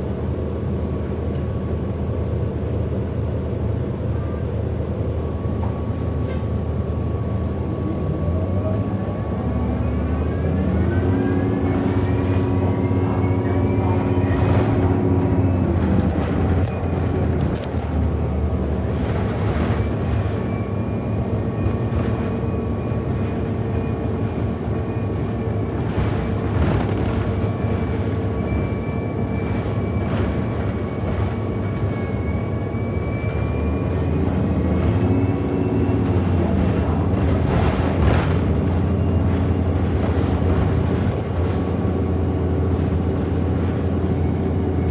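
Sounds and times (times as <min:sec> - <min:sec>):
electric bus motor whine: 0:00.0 - 0:44.9.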